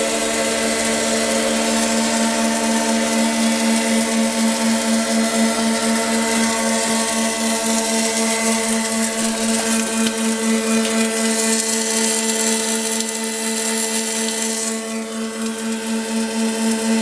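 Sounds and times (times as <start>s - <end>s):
welding machine humming: 0.0s - 17.0s.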